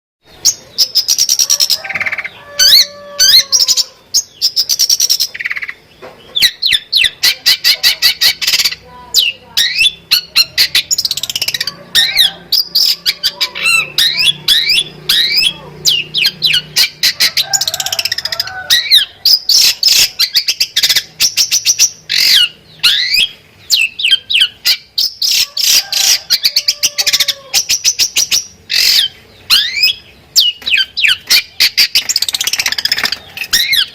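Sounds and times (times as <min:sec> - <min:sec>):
shrike singing: 0:00.3 - 0:33.9.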